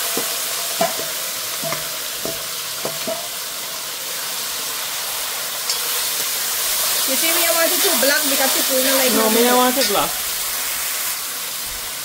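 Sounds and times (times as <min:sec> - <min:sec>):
shrimp sizzling in hot oil: 0:00.0 - 0:12.0.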